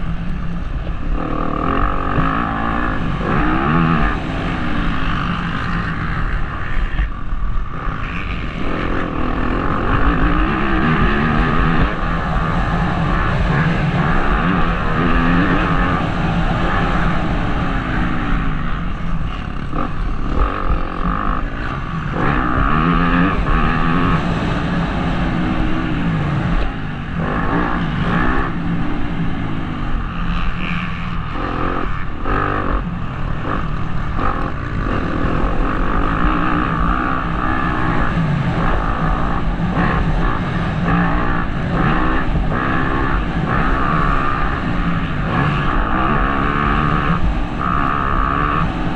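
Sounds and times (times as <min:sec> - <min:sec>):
motocross bike engine revving: 0:00.0 - 0:48.9.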